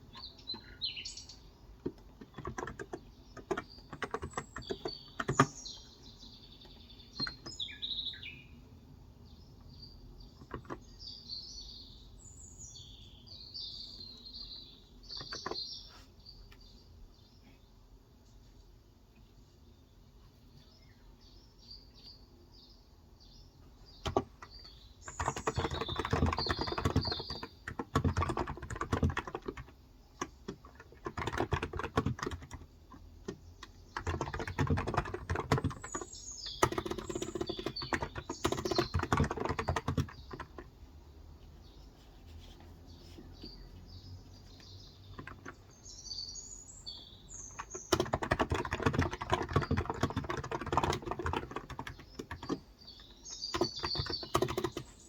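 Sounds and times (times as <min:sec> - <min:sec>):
birds chirping: 0:00.0 - 0:55.0
typing on keyboard: 0:01.8 - 0:05.8, 0:06.7 - 0:07.6, 0:10.4 - 0:11.0, 0:15.1 - 0:15.6, 0:24.0 - 0:40.7, 0:45.1 - 0:45.7, 0:47.4 - 0:55.0.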